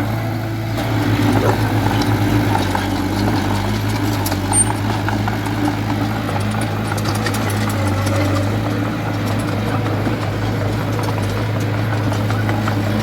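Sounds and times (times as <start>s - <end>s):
heavy diesel engine running: 0.0s - 13.0s
faint clicks and clanks: 3.8s - 13.0s.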